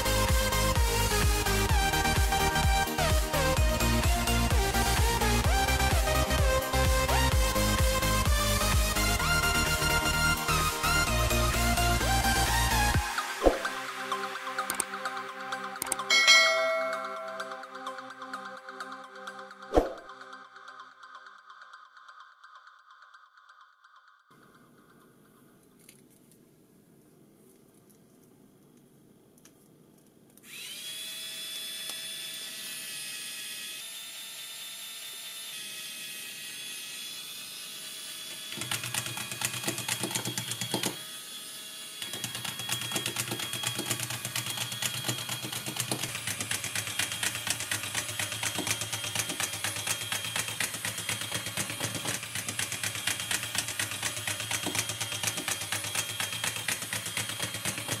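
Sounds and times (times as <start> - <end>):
small electric motor whining: 30.4 - 58.0
toy robot clattering clicks: 38.6 - 41.0, 42.0 - 58.0.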